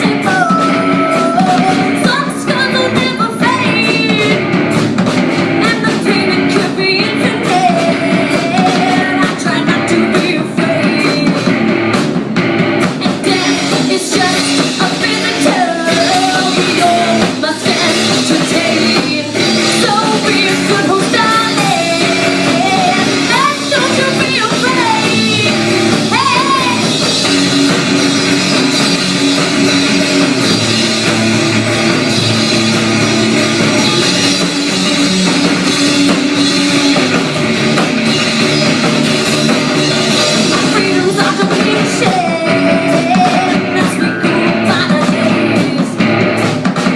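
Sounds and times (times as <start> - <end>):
person singing: 0.0 - 4.6, 5.6 - 11.5, 13.0 - 27.2, 33.5 - 36.7, 40.0 - 46.2
live rock band playing: 0.0 - 46.9.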